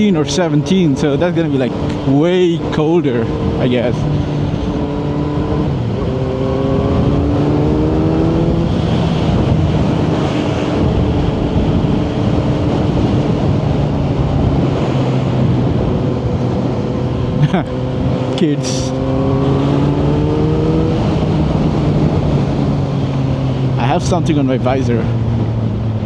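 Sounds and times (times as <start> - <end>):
motorcycle engine: 0.0 - 26.0
wind rush: 0.0 - 26.0.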